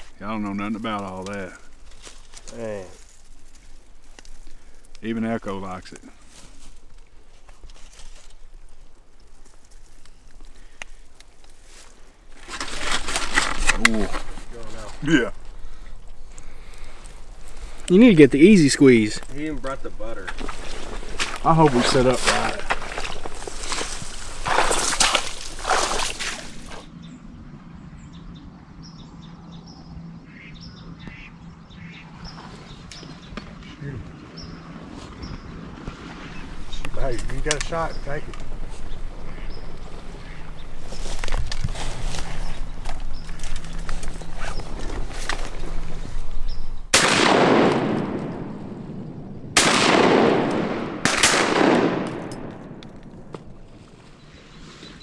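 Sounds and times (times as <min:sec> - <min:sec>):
birds chirping: 0:00.0 - 0:12.3, 0:12.9 - 0:51.0, 0:51.6 - 0:55.0
loud rustling and brushing: 0:00.0 - 0:26.9, 0:34.8 - 0:46.9, 0:53.6 - 0:55.0
shotgun shots with echo: 0:46.9 - 0:52.8.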